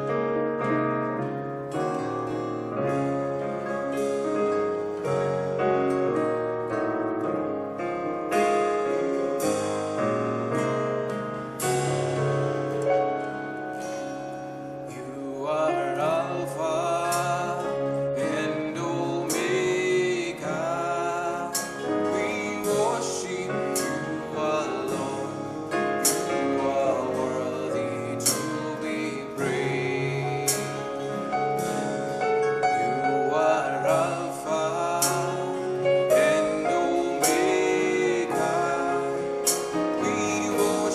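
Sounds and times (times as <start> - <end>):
keyboard playing chords: 0.0 - 40.9
percussion hits: 11.6 - 14.3, 25.9 - 26.7, 34.8 - 40.9
voices singing: 14.9 - 40.9.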